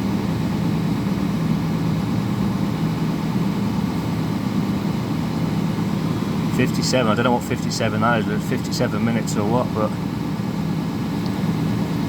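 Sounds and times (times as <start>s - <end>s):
diesel truck engine running: 5.1s - 12.0s.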